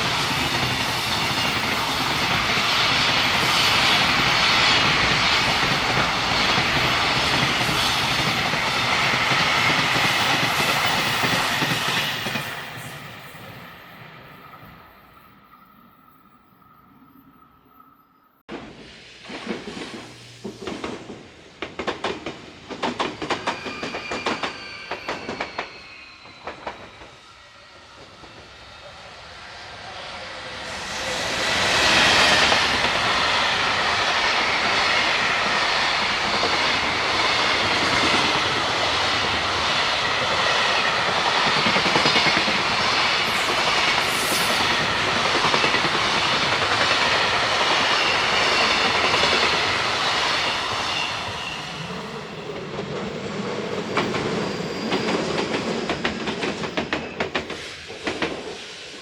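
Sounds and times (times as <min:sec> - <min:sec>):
train passing with rumble: 0:00.0 - 0:59.0
train wheels clicking over rail joints: 0:18.5 - 0:25.7, 0:52.5 - 0:58.7.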